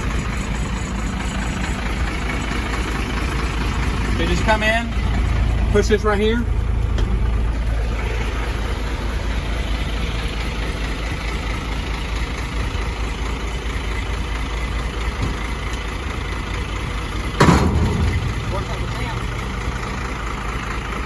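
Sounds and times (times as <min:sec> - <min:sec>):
diesel truck engine idling: 0:00.0 - 0:21.0
loud knock: 0:17.4 - 0:19.3.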